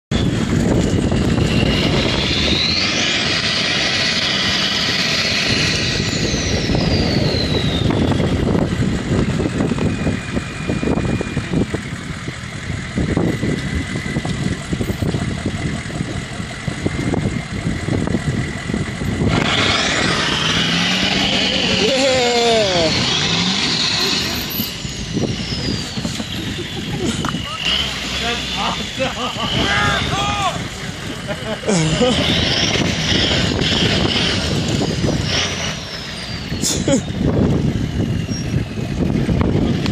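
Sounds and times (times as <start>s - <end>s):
high whine: 0.1s - 39.9s
vehicle engine revving hard: 0.2s - 39.9s.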